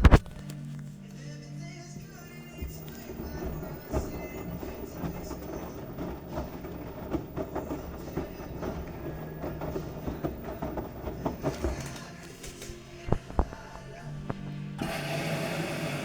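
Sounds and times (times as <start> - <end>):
washing machine drum rumbling: 0.0 - 16.0
knocks and clunks in drum: 2.6 - 15.0.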